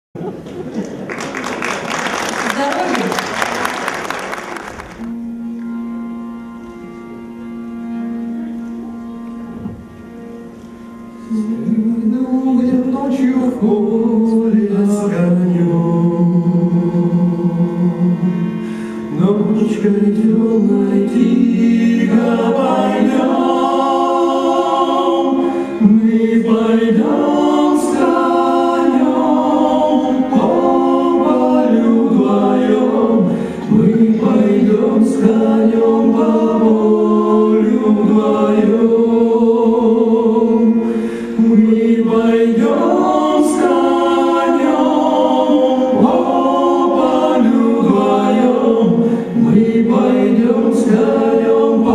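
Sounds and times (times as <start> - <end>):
choir singing in harmony: 11.2 - 51.9.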